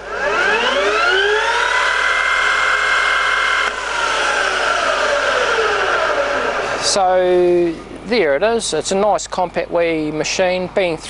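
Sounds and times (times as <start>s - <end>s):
lathe spindle whine: 0.0s - 8.0s.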